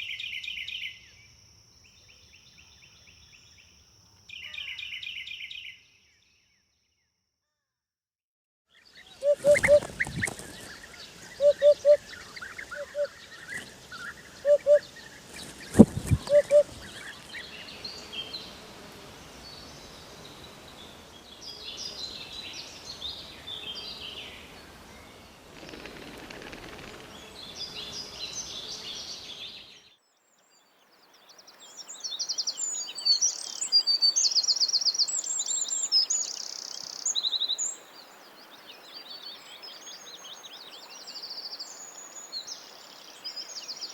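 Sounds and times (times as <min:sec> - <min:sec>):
small birds chirping and trilling: 0:08.8 - 0:18.5
hoopoe calling oop-oop-oop: 0:09.2 - 0:10.6, 0:11.2 - 0:13.8, 0:14.4 - 0:14.9, 0:15.8 - 0:16.9.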